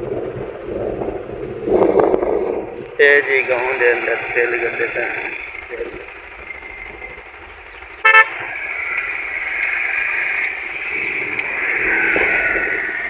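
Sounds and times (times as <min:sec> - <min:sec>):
vehicle and road noise: 0:00.8 - 0:13.0
vehicle horn beep: 0:08.0 - 0:08.5.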